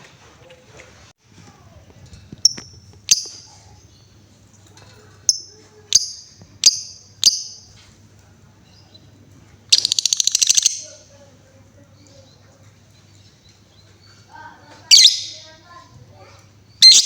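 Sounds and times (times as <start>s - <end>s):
lovebird rattling trill: 2.4s - 3.6s, 5.3s - 7.7s, 9.7s - 11.0s
lovebird chirping: 2.4s - 4.2s, 5.2s - 7.7s, 8.6s - 11.1s, 14.9s - 15.5s, 16.7s - 17.0s.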